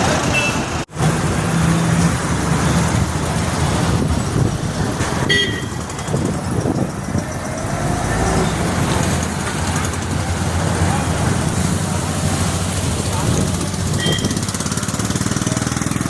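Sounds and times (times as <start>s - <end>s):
road traffic: 0.0s - 16.0s
vehicle engine running: 0.0s - 16.0s
horn toot: 5.2s - 5.8s.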